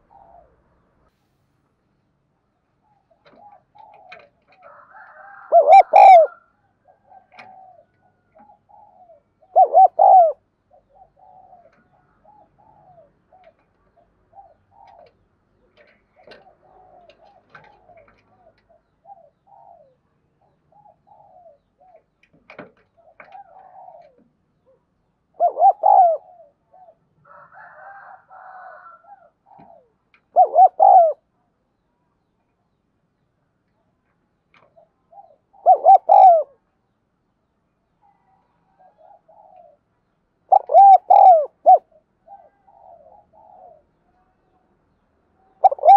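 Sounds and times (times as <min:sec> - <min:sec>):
dove cooing loudly: 0:00.0 - 0:00.6, 0:02.9 - 0:13.6, 0:14.3 - 0:15.2, 0:15.8 - 0:20.0, 0:20.7 - 0:22.0, 0:23.0 - 0:31.3, 0:35.1 - 0:36.6, 0:38.8 - 0:39.8, 0:40.5 - 0:44.0, 0:45.5 - 0:45.9
faint doves cooing: 0:00.0 - 0:01.2, 0:02.0 - 0:32.8, 0:34.6 - 0:37.0, 0:37.8 - 0:45.9.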